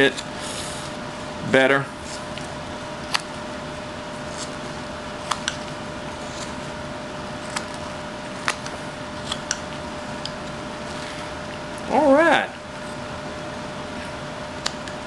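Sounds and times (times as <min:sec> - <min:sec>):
background hum: 0:00.0 - 0:15.0
knife whittling wood clicks: 0:05.3 - 0:05.7, 0:08.4 - 0:10.4.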